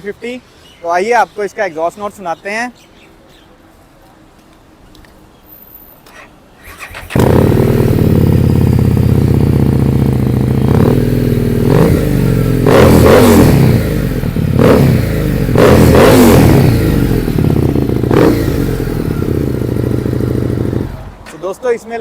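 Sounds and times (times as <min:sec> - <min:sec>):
motorcycle engine revving: 0:06.6 - 0:21.3.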